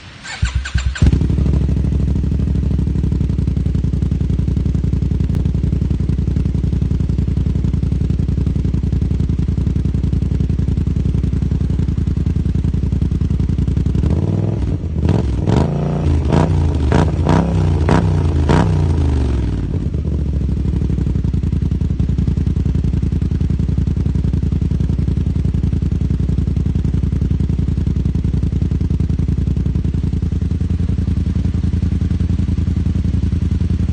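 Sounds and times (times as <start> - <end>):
scooter engine idling and revving: 0.0 - 33.9.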